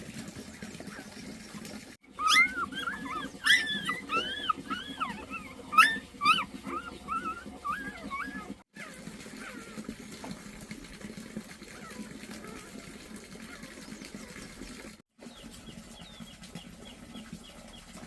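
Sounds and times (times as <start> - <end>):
dog whimpering and yipping: 2.1 - 9.7
dog yelps: 2.1 - 9.8.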